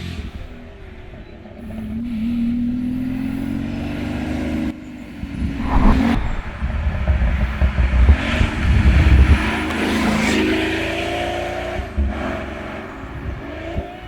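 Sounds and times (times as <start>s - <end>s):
exhaust surges: 0.0s - 9.9s
car engine accelerating: 0.0s - 14.0s.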